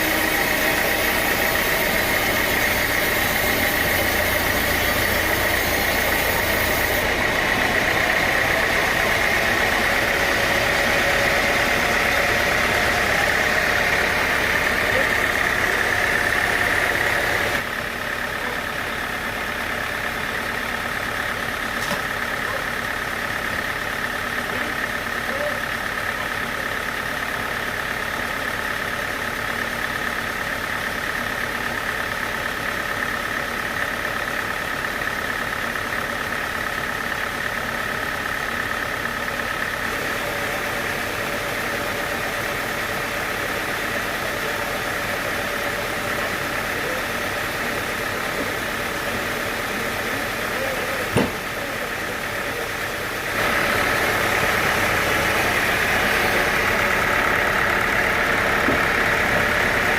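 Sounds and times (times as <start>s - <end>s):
sawmill machinery humming: 0.0s - 59.9s
sharp knock: 51.1s - 51.4s.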